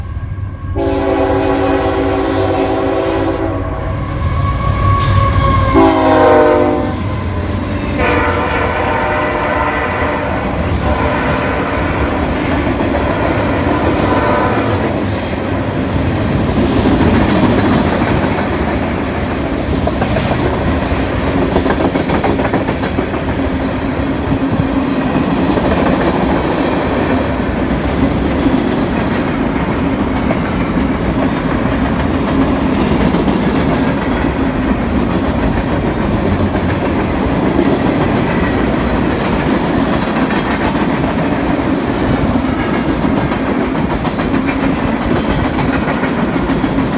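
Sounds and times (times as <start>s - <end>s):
train horn: 0.0s - 15.1s
train wheels clacking over rails: 5.0s - 46.9s.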